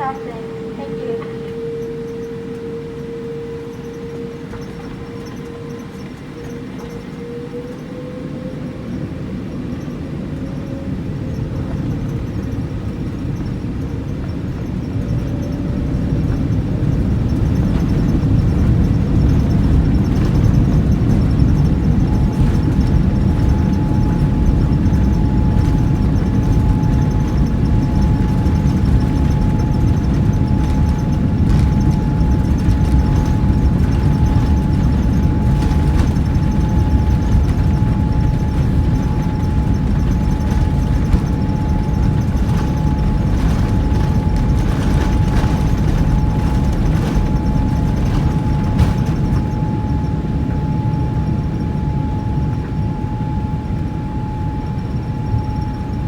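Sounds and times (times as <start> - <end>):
jet engine rumble in cabin: 0.0 - 56.0
high engine tone: 15.0 - 56.0
knocks and rattles: 16.3 - 50.1.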